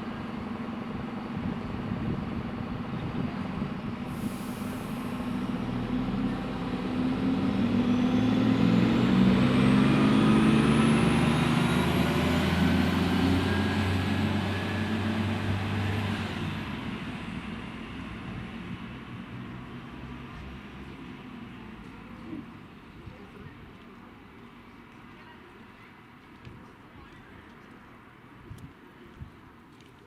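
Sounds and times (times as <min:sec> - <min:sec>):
diesel train engine running: 0:00.0 - 0:23.0
hiss of air: 0:04.1 - 0:05.4.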